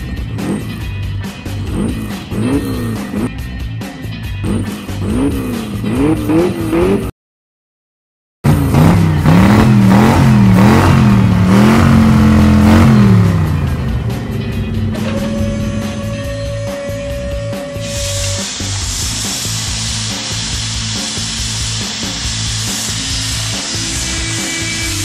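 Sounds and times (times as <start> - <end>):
background music: 0.0 - 7.1, 8.5 - 25.0
cartoon engine revving: 1.7 - 3.3, 8.5 - 14.0.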